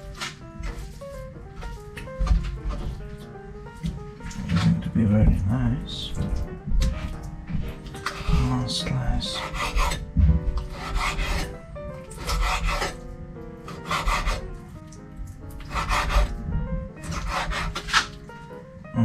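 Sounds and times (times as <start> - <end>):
knife sawing through raw meat: 8.0 - 13.0, 13.7 - 14.6, 15.6 - 16.4, 17.0 - 18.1.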